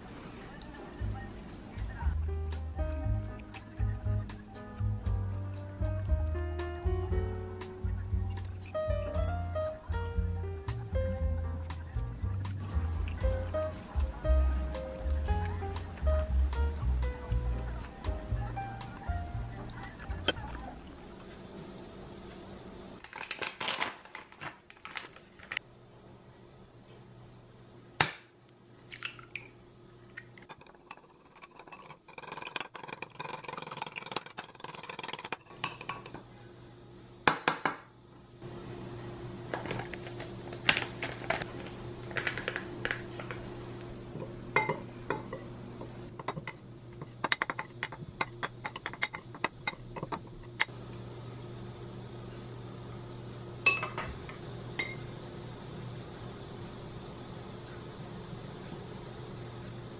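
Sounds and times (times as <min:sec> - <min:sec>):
steady low hum: 0:00.0 - 0:23.0, 0:25.6 - 0:59.9
metal utensils clinking on glass bowls: 0:44.6 - 0:45.4, 0:46.2 - 0:50.2, 0:53.7 - 0:54.1.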